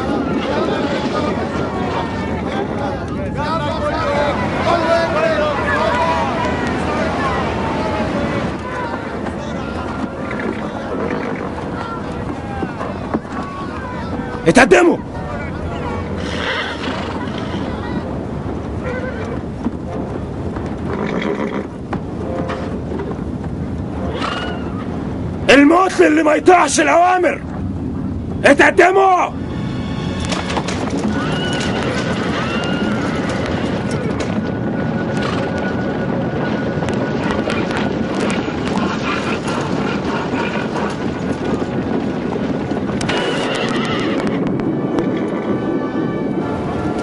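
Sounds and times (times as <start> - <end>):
rumble of many hooves: 0.0 - 47.0
horses whinnying: 9.4 - 13.8, 16.0 - 18.0, 18.8 - 19.5, 20.8 - 21.8, 24.0 - 24.9, 29.8 - 34.4, 37.2 - 41.7, 43.0 - 44.5.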